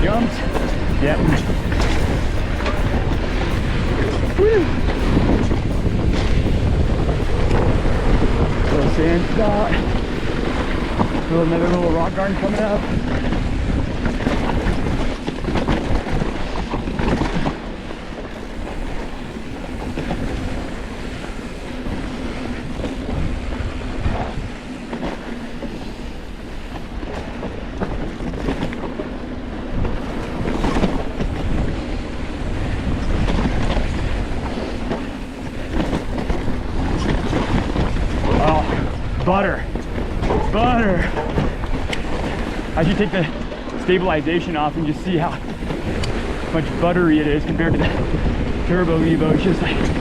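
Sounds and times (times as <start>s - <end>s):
steady low hum: 0.0s - 15.2s
wind buffeting microphone: 0.0s - 50.0s.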